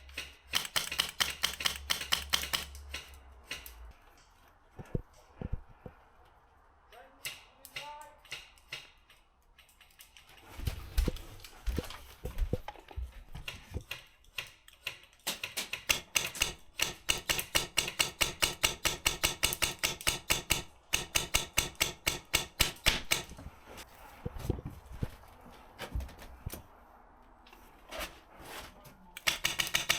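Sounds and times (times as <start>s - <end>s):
airsoft gun rapid firing: 0.5s - 2.8s, 15.3s - 23.3s, 29.2s - 29.9s.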